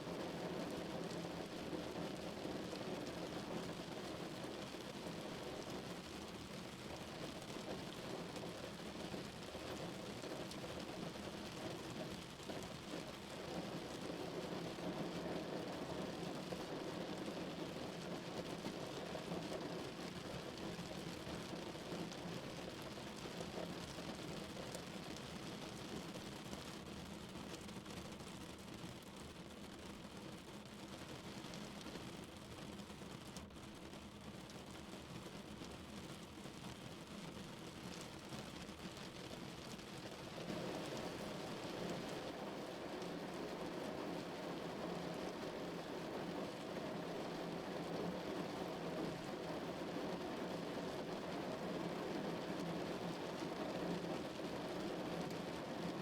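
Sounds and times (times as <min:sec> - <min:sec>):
rain on a car roof: 0:00.0 - 0:56.0.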